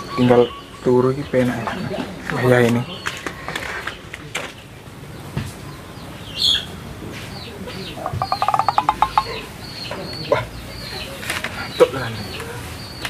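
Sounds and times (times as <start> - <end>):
small birds chirping: 0.0 - 13.0
bird trill: 8.0 - 9.9.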